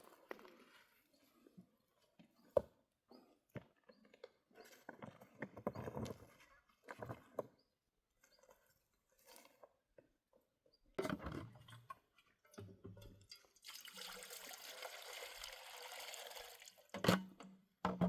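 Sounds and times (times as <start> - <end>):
water pouring: 13.0 - 17.0.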